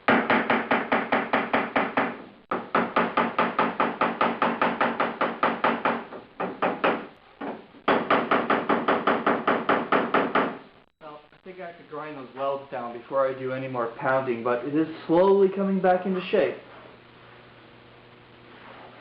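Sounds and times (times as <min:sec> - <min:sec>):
hammer tapping on sheet metal: 0:00.1 - 0:10.6.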